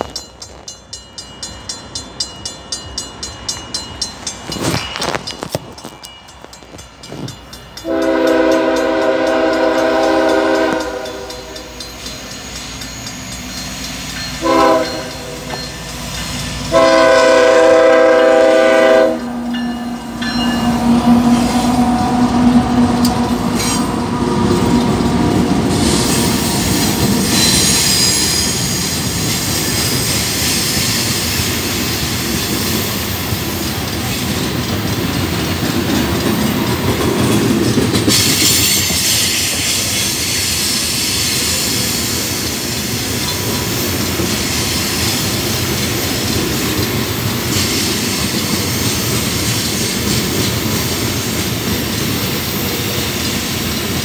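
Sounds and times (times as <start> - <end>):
diesel locomotives rumbling past: 0.0 - 54.0
train air horn blasts: 7.8 - 11.8, 14.4 - 15.5, 16.7 - 19.5.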